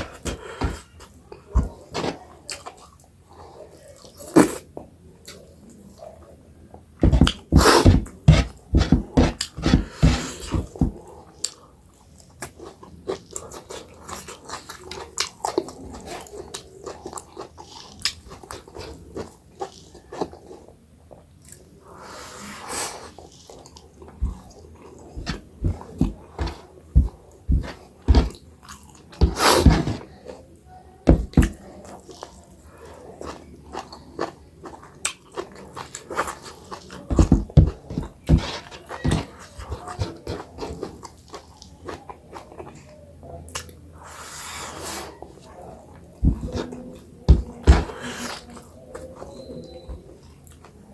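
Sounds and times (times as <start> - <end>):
breathy sounds: 0.0 - 1.0.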